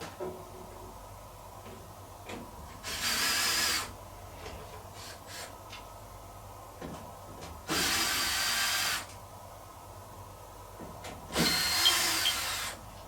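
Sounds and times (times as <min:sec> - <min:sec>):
small electric motor whirring: 0:11.3 - 0:12.8.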